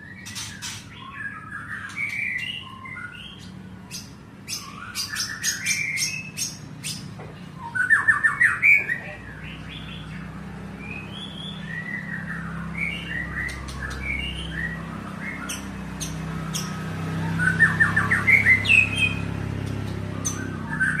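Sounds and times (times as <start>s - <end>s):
bird singing whistled phrases: 7.6s - 9.2s.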